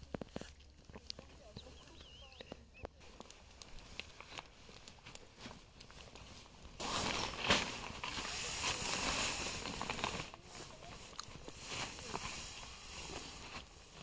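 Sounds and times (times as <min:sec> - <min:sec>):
tent gear rustling: 0:03.0 - 0:14.0.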